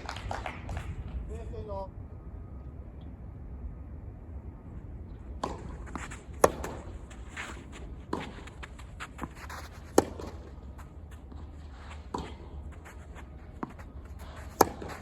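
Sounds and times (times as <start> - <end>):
steady low rumble: 0.0 - 15.0
tennis racket hitting ball: 5.4 - 6.9, 8.0 - 15.0
tennis ball bouncing: 5.4 - 15.0.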